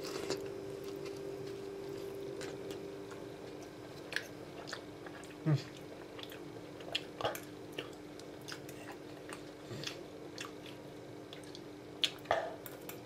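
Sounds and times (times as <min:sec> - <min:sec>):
person chewing food: 0:00.0 - 0:13.0
steady low hum: 0:00.0 - 0:13.0.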